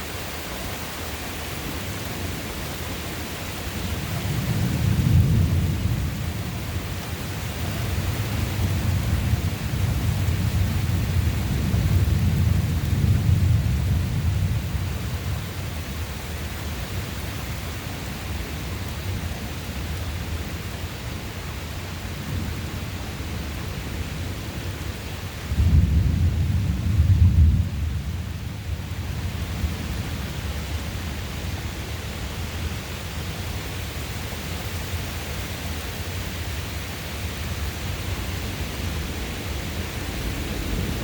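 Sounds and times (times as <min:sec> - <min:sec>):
steady rain: 0:00.0 - 0:41.0
thunder rumbling: 0:03.8 - 0:15.6, 0:25.5 - 0:30.0, 0:38.3 - 0:41.0.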